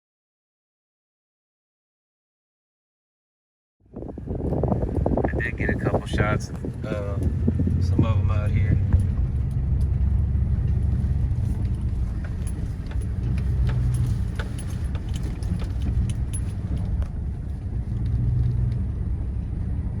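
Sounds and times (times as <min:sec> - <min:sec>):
road and engine rumble: 0:03.8 - 0:20.0
loose objects rattling: 0:10.9 - 0:17.6.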